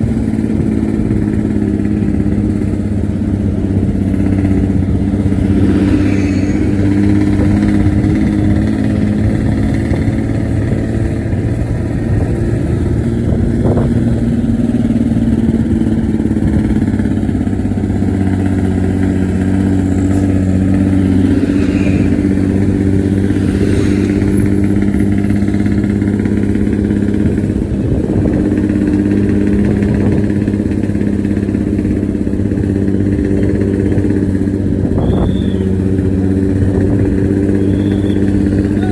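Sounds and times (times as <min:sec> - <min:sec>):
bus diesel engine rumbling: 0:00.0 - 0:38.9.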